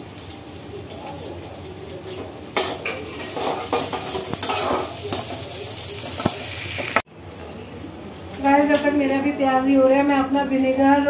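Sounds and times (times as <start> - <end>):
onions sizzling in oil: 0.0 - 10.6
utensil scraping a pan: 2.6 - 5.4.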